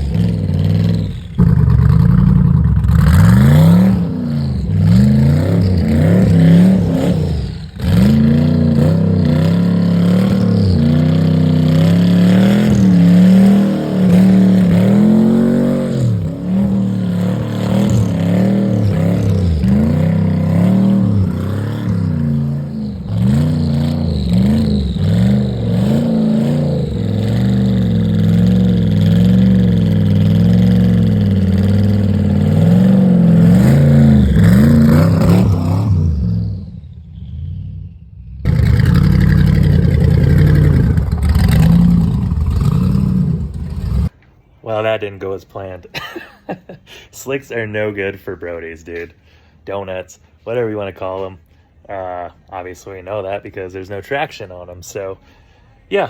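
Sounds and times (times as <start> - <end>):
car engine revving: 0.0 - 44.1.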